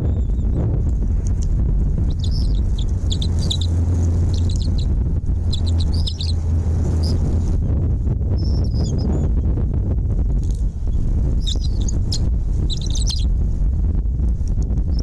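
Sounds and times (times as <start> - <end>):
loud steady low rumble: 0.0 - 15.0
small birds chirping: 2.0 - 7.5, 8.4 - 9.3, 10.4 - 13.3.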